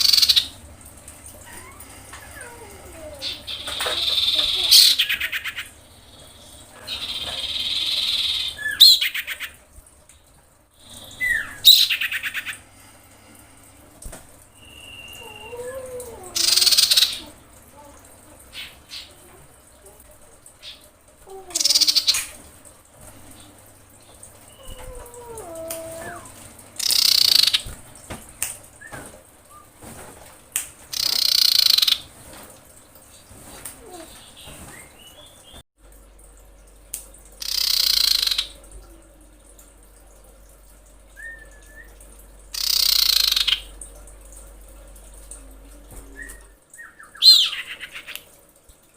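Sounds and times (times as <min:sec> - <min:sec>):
bird harsh churr: 0:01.5 - 0:05.7, 0:16.4 - 0:17.3, 0:26.8 - 0:27.7, 0:30.9 - 0:32.0, 0:37.4 - 0:38.6, 0:42.6 - 0:43.7
short falling whistle: 0:14.6 - 0:15.5
harsh screeching bird calls: 0:30.9 - 0:32.0.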